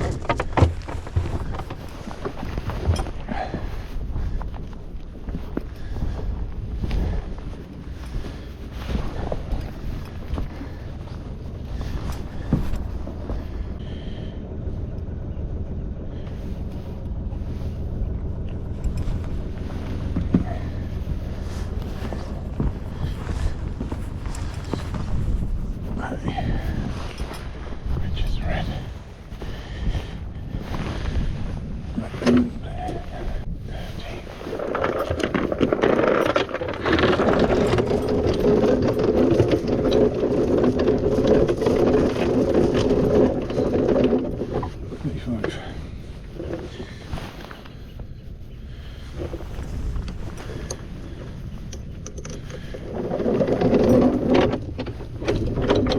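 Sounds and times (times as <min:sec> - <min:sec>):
boat engine running: 0:00.0 - 0:55.9
wind on microphone: 0:00.0 - 0:55.9.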